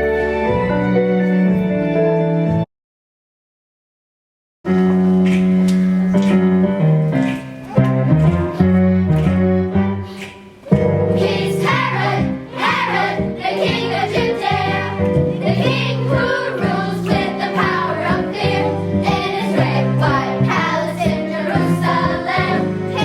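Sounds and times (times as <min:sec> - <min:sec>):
keyboard accompaniment: 0:00.0 - 0:02.7, 0:04.7 - 0:23.0
children's choir singing: 0:10.0 - 0:23.0.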